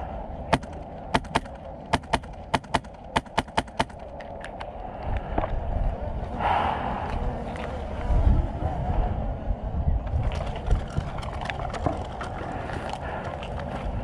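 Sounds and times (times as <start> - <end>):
airsoft gun shots: 0.5 - 4.0.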